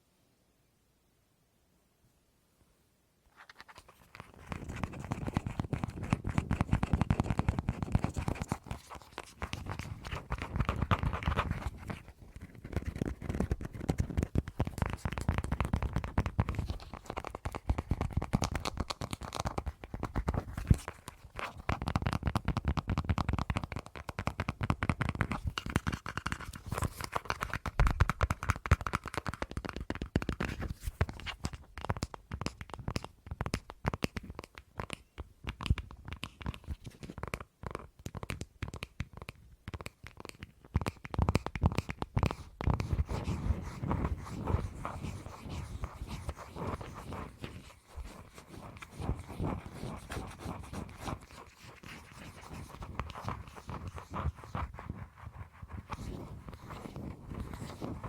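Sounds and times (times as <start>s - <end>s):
fingernail tapping and scratching: 3.4s - 58.0s.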